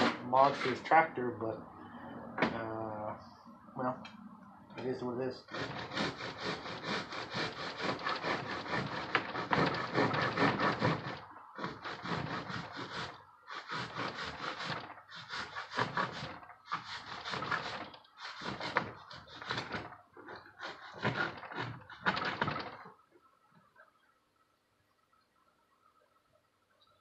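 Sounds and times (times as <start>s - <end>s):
hand saw cutting metal: 0.0s - 1.0s, 5.4s - 22.9s.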